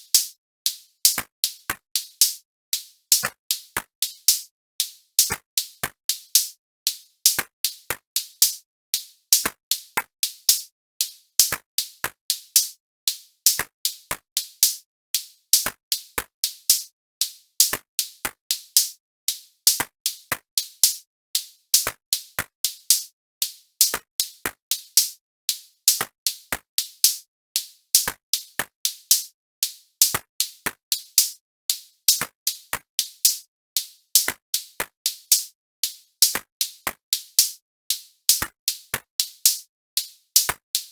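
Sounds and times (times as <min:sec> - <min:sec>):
drum machine beat: 0:36.2 - 0:37.6, 0:38.3 - 0:39.6.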